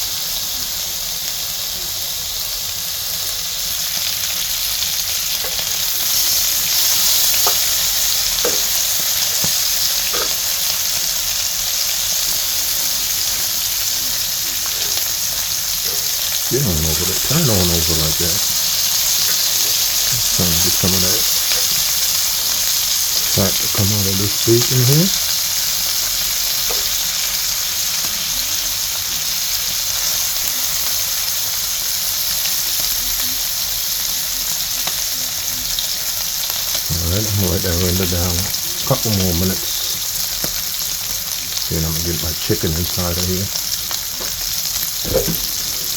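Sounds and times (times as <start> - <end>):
bacon sizzling in a pan: 0.0 - 45.9
fat popping: 45.0 - 45.9.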